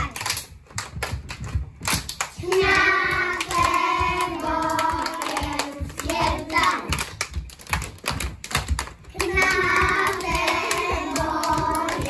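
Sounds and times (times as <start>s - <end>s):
hand clapping: 0.0s - 12.0s
children singing: 2.4s - 7.0s, 9.2s - 12.0s.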